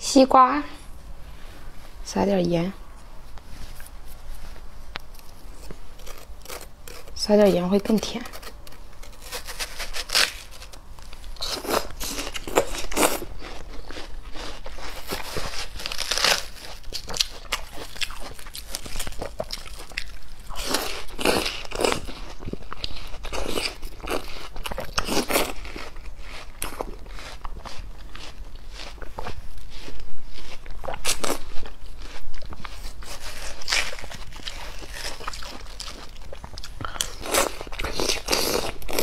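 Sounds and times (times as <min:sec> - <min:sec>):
watermelon crunching while chewed: 0:03.7 - 0:39.0.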